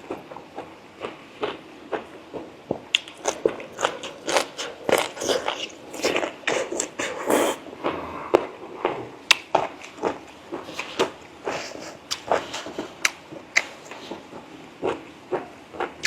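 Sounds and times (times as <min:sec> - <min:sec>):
person chewing with wet smacks: 0:02.7 - 0:07.6, 0:08.3 - 0:16.0.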